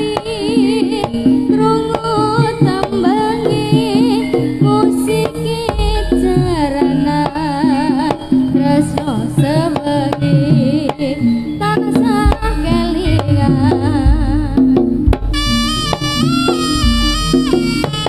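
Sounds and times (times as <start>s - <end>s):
hand drums beating: 0.0s - 18.0s
held gamelan tones: 0.0s - 18.0s
wavering vibrato melody: 0.0s - 18.0s
deep gong booms: 5.7s - 7.4s, 12.6s - 17.3s.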